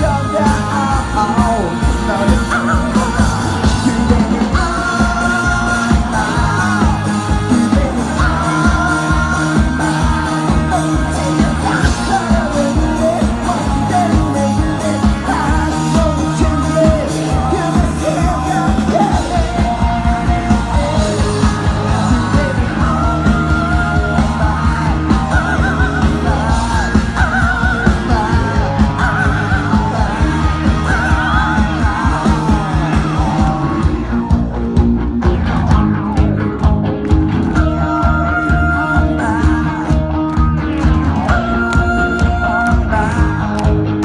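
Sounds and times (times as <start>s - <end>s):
person shouting singing: 0.0s - 34.7s, 35.7s - 44.0s
bending electric guitar lead: 0.0s - 44.0s
rock band playing live: 0.0s - 44.0s.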